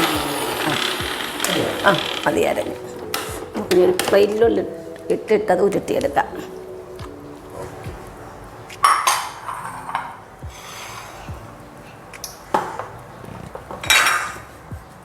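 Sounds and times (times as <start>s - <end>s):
metal kitchenware clattering: 8.8s - 11.3s, 13.6s - 14.6s.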